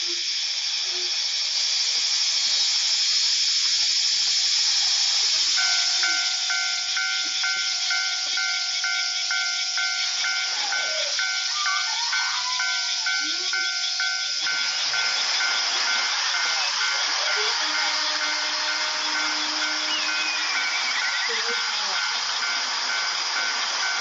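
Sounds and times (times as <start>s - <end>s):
steady high hiss: 0.0s - 24.0s
railroad crossing warning bell: 5.2s - 24.0s.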